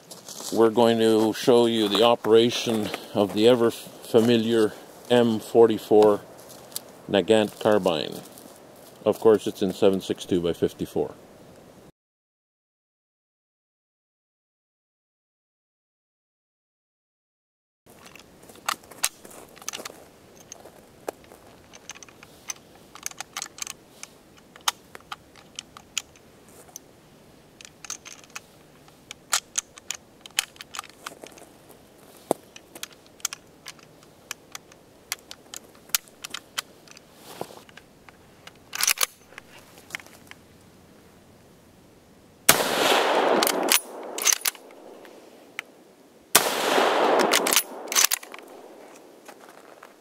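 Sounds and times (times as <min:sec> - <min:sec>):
rifle bolt action clicking: 0:38.5 - 0:39.2, 0:42.9 - 0:44.8, 0:46.4 - 0:49.1.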